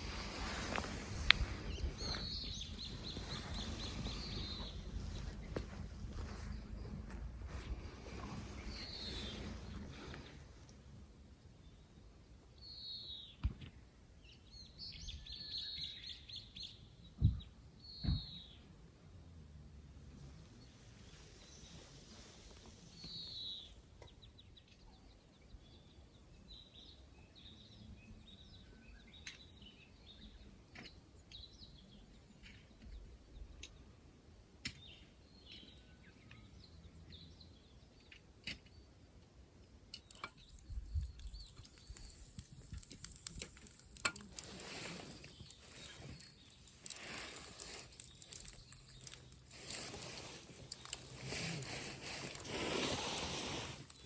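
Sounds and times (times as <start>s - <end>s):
rustling and crackling with clicks: 0.0s - 10.8s, 39.6s - 54.0s
faint bird chirps: 40.0s - 53.2s.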